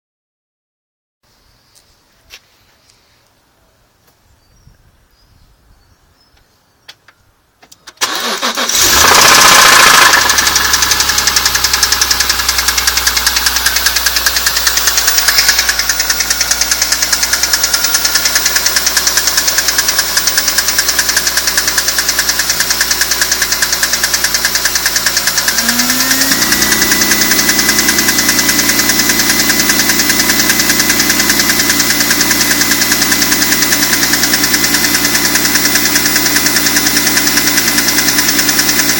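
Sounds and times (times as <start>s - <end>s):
car engine starting and idling: 7.8s - 38.9s
rising whine: 24.4s - 38.6s.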